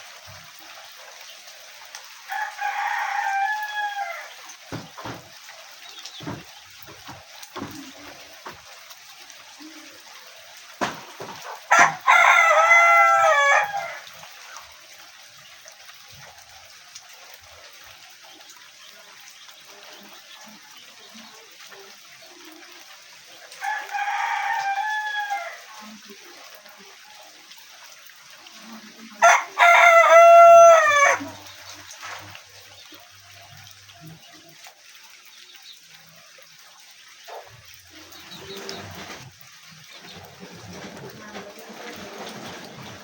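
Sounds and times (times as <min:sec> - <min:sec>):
rooster crowing: 0:02.3 - 0:04.3, 0:11.7 - 0:14.1, 0:23.6 - 0:25.7, 0:29.2 - 0:31.5.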